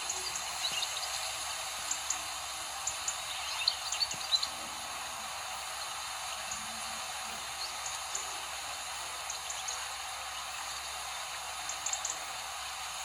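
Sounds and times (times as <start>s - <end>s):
small birds chirping: 0.0s - 13.0s
steady background hiss: 0.0s - 13.0s.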